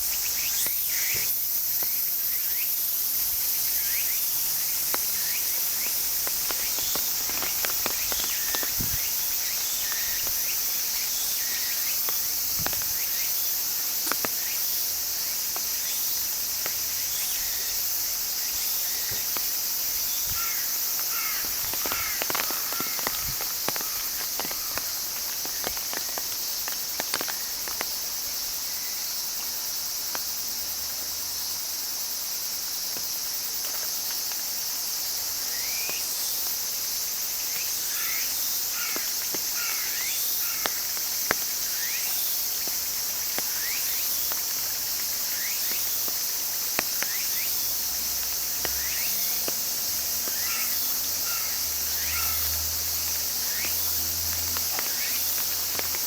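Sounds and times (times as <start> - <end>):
cicadas buzzing: 0.0 - 56.0.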